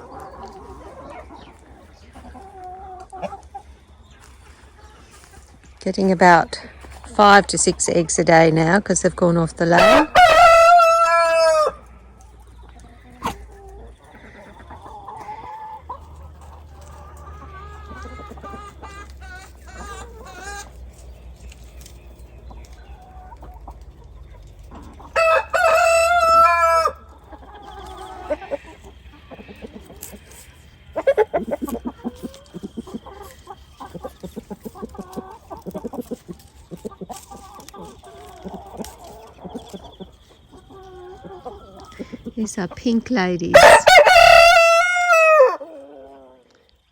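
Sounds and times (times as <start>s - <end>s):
chickens clucking: 0.0s - 46.9s
rooster crowing: 9.8s - 11.9s, 25.2s - 27.0s, 43.5s - 45.7s.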